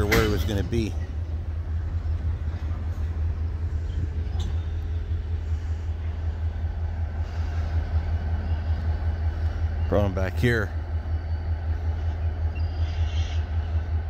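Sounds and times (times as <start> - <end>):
freight train rumbling past: 0.0 - 14.0.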